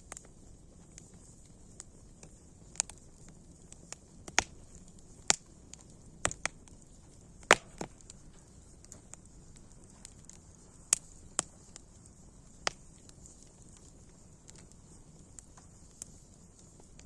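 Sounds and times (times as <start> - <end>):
faint hiss: 0.0 - 17.0
wood fire crackling: 0.0 - 17.0.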